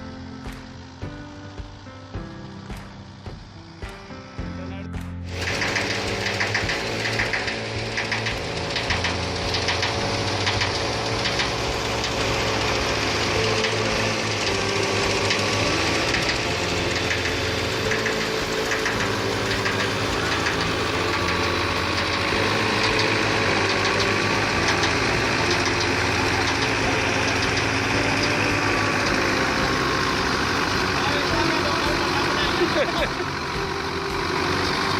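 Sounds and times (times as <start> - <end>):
engine chugging: 0.0 - 4.0, 4.7 - 34.9
small clicks: 5.0 - 12.2
threshing machine rattling whoosh: 5.3 - 34.9.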